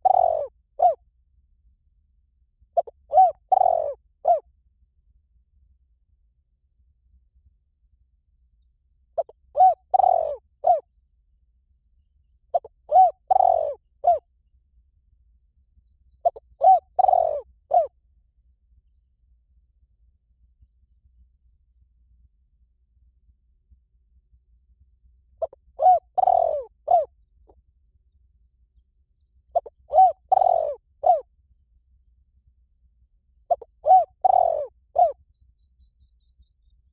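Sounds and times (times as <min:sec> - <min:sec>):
dove cooing: 0:00.0 - 0:01.0, 0:02.8 - 0:04.4, 0:09.2 - 0:10.8, 0:12.5 - 0:14.2, 0:16.2 - 0:17.9, 0:25.4 - 0:27.1, 0:29.5 - 0:31.2, 0:33.5 - 0:35.2.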